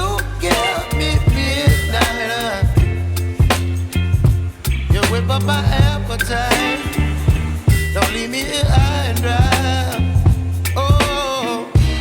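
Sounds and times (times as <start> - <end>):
person singing: 0.0 - 3.4, 7.9 - 12.0
bass: 0.0 - 11.2, 11.8 - 12.0
steady drum beat: 0.0 - 12.0.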